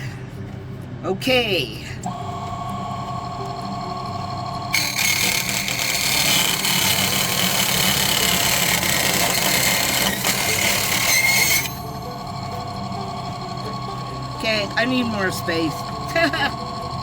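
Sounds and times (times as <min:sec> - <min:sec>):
table saw whining: 0:02.1 - 0:17.0
saw blade cutting plastic: 0:04.7 - 0:17.0.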